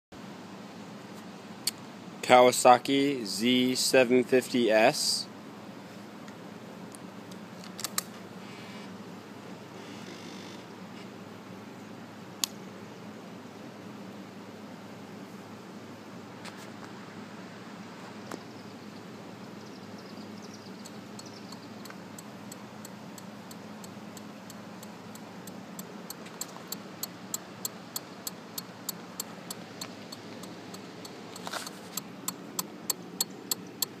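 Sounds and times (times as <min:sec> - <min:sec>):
steady low hum: 0:10.6 - 0:34.0.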